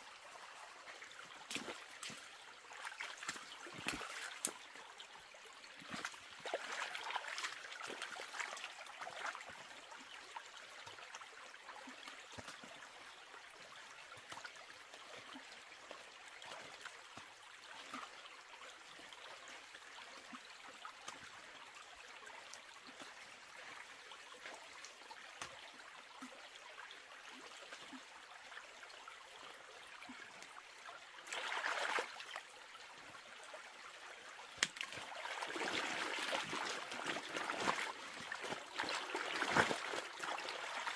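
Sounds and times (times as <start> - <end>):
water trickling: 26.6 - 40.9
rush of water: 31.2 - 32.4, 34.5 - 40.9.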